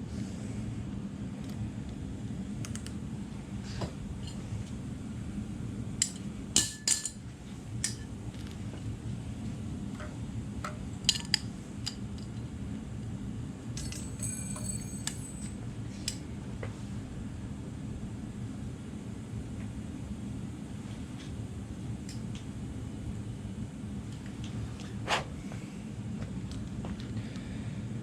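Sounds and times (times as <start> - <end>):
steady low hum: 0.0 - 28.0
metal tools clinking: 13.8 - 15.6
metallic ring: 13.8 - 15.6.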